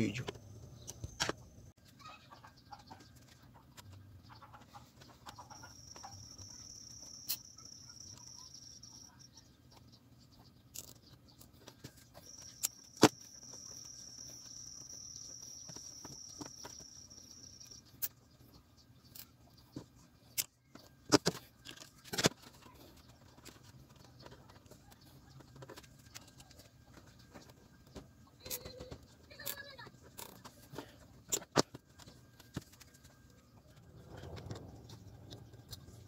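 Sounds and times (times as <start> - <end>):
insect trilling: 5.4 - 9.3, 12.2 - 18.1.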